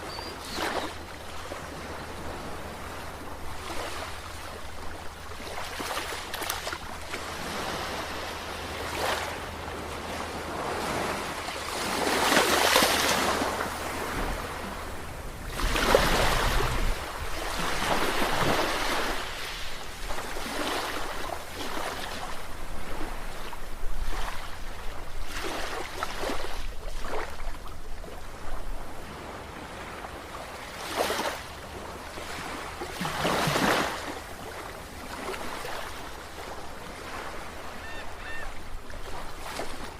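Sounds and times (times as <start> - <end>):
sea waves breaking: 0.0 - 39.9.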